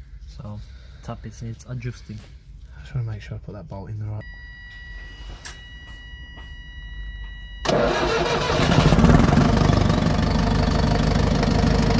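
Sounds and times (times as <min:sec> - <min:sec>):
diesel engine starting and running: 0:07.6 - 0:11.9.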